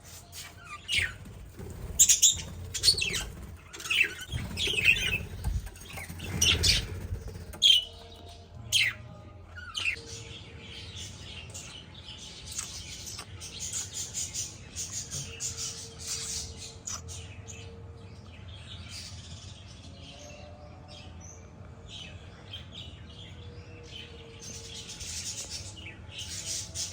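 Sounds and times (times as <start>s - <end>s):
small birds chirping: 0.2s - 17.5s.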